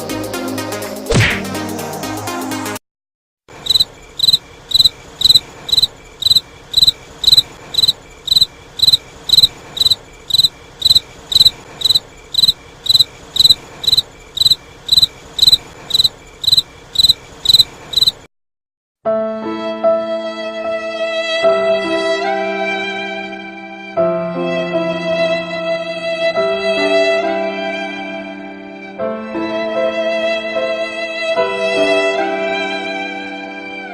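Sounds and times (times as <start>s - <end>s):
cricket chirping: 3.5s - 18.3s.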